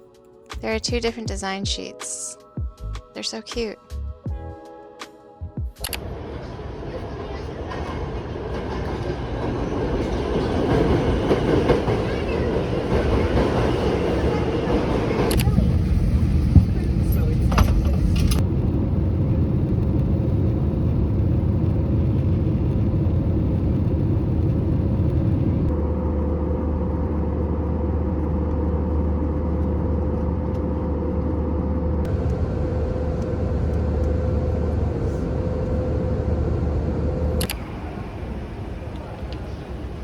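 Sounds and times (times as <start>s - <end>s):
constant hum: 10.1s - 40.0s
vehicle interior rumble: 15.3s - 26.0s, 26.8s - 40.0s.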